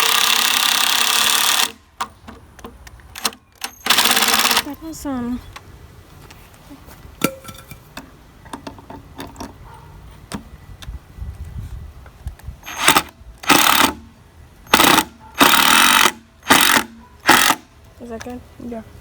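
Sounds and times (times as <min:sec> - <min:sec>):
power tool bursts on wood: 0:03.2 - 0:04.6, 0:12.6 - 0:14.0, 0:14.7 - 0:17.7
construction knocks and taps: 0:07.2 - 0:09.6.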